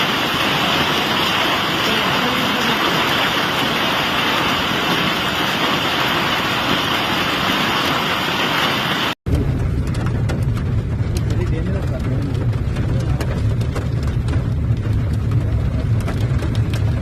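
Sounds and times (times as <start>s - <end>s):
heavy rain pouring: 0.0s - 17.0s
low rumble: 9.3s - 17.0s.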